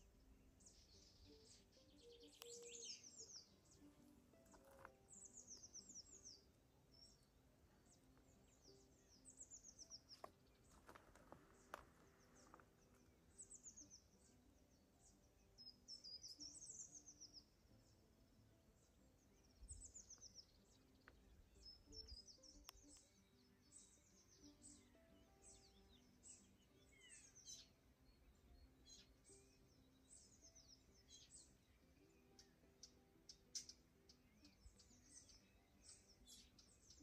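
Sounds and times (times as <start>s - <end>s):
soft background music: 0.0s - 37.0s
songbird trilling: 1.5s - 3.6s.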